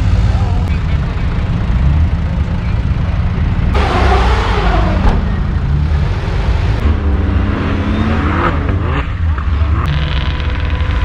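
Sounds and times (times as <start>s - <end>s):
vehicle engine low rumble: 0.0s - 11.0s
rush of noise: 3.8s - 8.5s.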